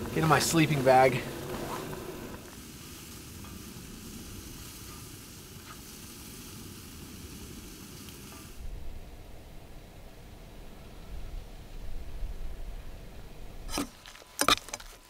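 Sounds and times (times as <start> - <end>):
food sizzling in a pan: 0.0 - 8.6.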